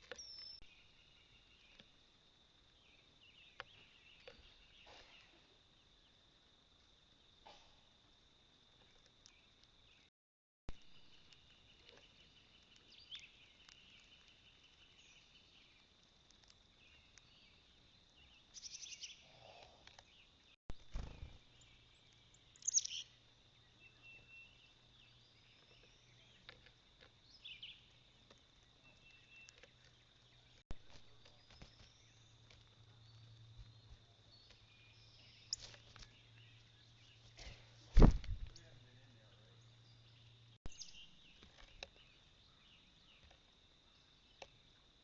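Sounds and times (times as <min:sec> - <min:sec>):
bird chirps and calls: 0:18.2 - 0:20.2, 0:20.9 - 0:26.5.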